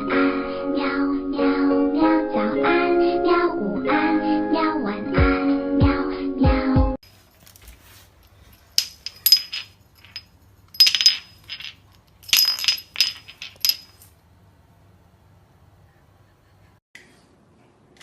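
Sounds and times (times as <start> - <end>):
small hard objects clinking: 8.2 - 14.2.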